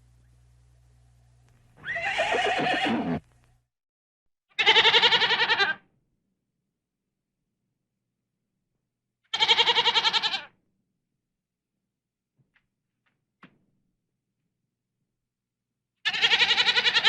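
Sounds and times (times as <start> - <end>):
goat bleating: 1.8 - 3.2, 4.5 - 5.8, 9.3 - 10.5, 16.0 - 17.0
horse whinnying: 1.8 - 3.2.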